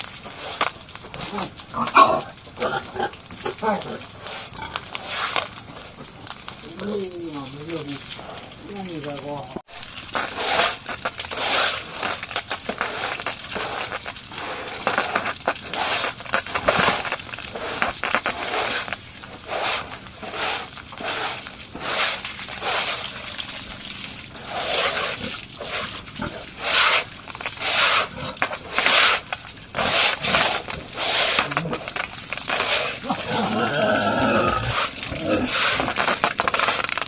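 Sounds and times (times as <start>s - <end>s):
pigs squealing and grunting: 1.1s - 5.5s, 24.4s - 36.8s.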